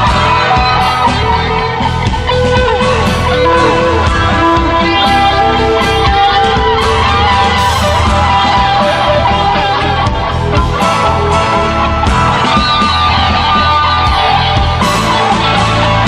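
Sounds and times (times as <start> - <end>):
bass line: 0.0 - 16.0
drums: 0.0 - 16.0
rock guitar: 0.0 - 16.0.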